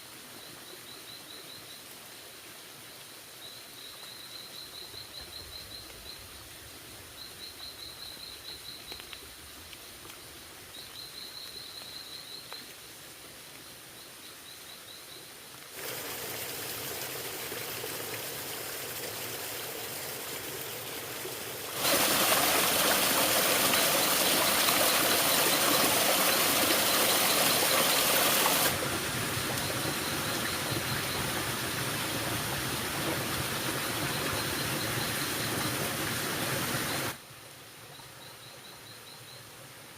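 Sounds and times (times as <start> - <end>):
insect chirps: 0.0 - 2.0, 2.6 - 16.1, 37.8 - 39.5
running water: 15.7 - 37.4.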